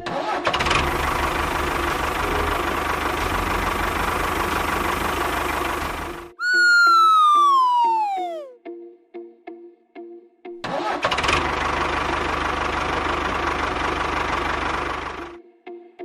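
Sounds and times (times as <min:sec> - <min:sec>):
engine chugging rumble: 0:00.5 - 0:06.3, 0:11.2 - 0:15.4
whistle-like tone sliding down: 0:06.4 - 0:08.6.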